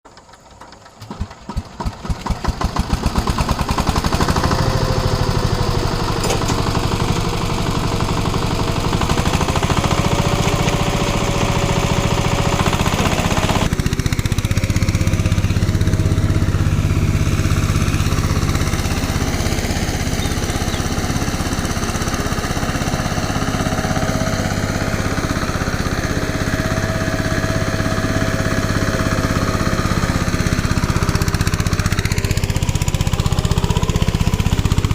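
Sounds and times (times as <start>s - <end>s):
engine running with whine: 0.1s - 34.9s.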